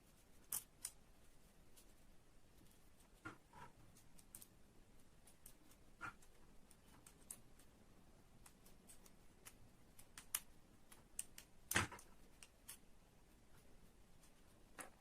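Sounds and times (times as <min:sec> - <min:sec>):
light clicks of small pieces: 0:03.2 - 0:04.6, 0:08.4 - 0:12.9.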